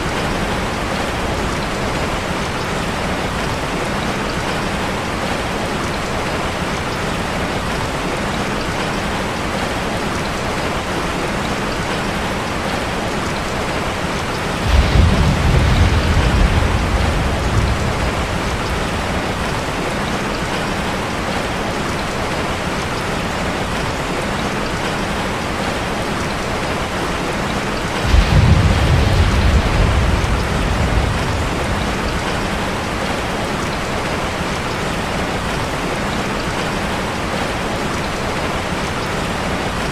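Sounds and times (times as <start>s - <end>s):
rain on a metal roof: 0.0s - 39.9s
thunder rolling: 14.3s - 21.4s, 27.5s - 33.9s.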